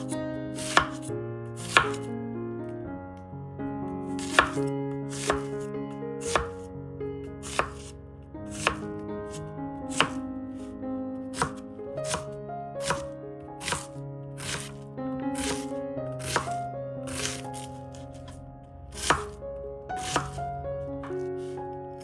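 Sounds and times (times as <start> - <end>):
knife chopping on cutting board: 0.0 - 2.1, 4.1 - 6.7, 7.4 - 10.3, 11.3 - 14.8, 15.4 - 19.4, 20.0 - 22.0
soft background music: 0.0 - 22.0.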